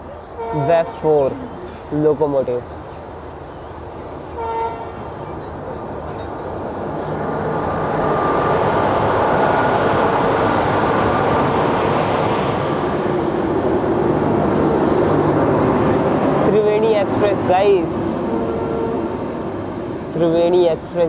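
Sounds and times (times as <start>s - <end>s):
train rumbling past: 0.0s - 21.0s
locomotive horn toot: 0.4s - 1.0s, 4.4s - 5.1s, 18.3s - 19.2s.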